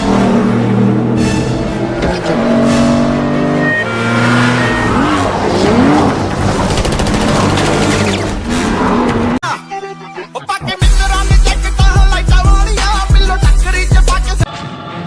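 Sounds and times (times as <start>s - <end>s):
car engines revving hard: 0.0s - 9.4s.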